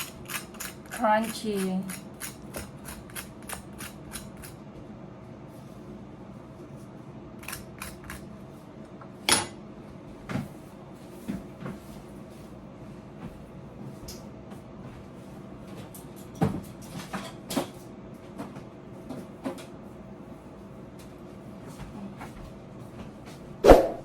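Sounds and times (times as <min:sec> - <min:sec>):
kitchen utensils clicking: 0:00.0 - 0:04.6.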